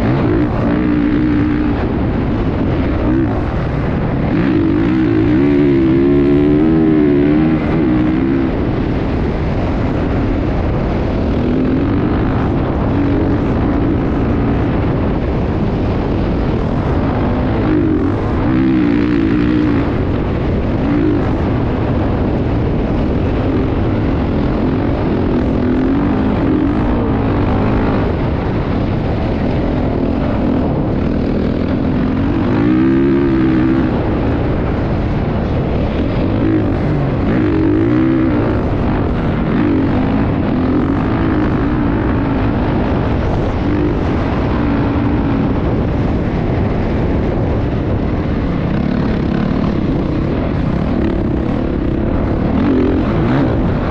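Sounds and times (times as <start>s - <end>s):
motocross bike engine revving: 0.0s - 53.9s.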